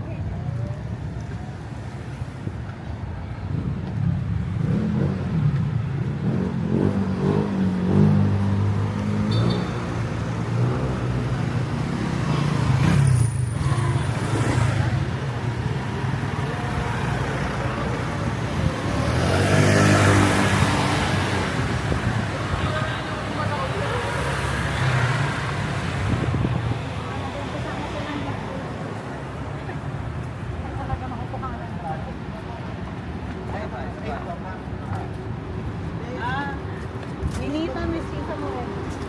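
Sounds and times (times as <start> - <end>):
vehicle engines passing: 0.0 - 39.0.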